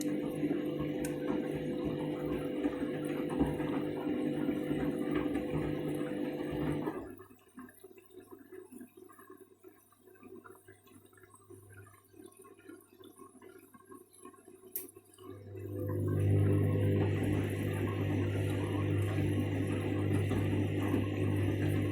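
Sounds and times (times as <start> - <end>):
washing machine drum tumbling: 0.0 - 7.0, 16.0 - 21.9
washing machine motor hum: 0.0 - 7.2, 15.3 - 21.9.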